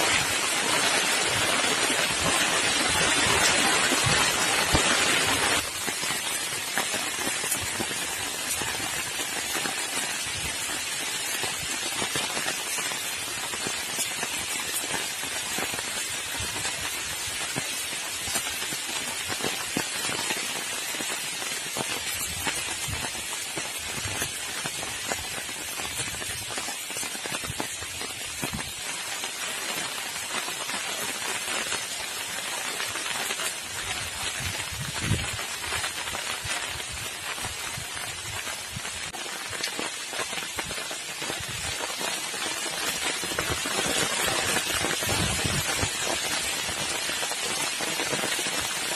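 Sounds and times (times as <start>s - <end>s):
heavy rain falling: 0.0s - 48.9s.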